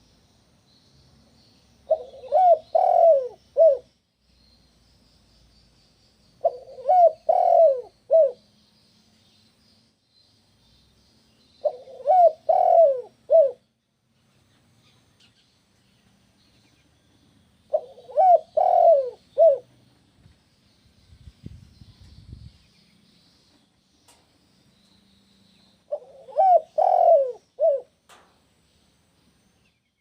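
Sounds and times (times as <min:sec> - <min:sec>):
faint high chirping: 0:00.0 - 0:30.0
dove cooing: 0:01.9 - 0:03.9, 0:06.4 - 0:08.4, 0:11.6 - 0:13.6, 0:17.7 - 0:19.8, 0:25.9 - 0:28.1.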